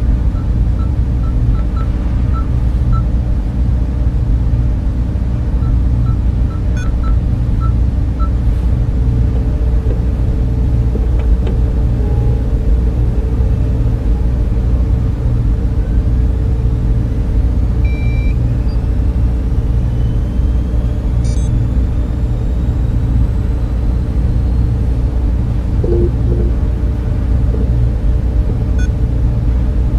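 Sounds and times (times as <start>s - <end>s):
cooling fans humming: 0.0s - 29.9s
faint short beeps: 25.8s - 26.6s.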